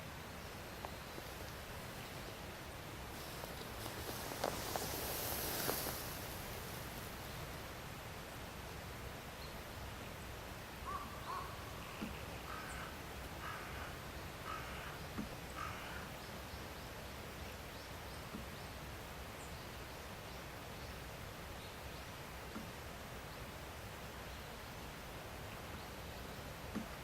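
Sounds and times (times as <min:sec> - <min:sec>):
steady background hiss: 0:00.0 - 0:27.0
crow cawing: 0:12.5 - 0:15.0, 0:15.6 - 0:16.1.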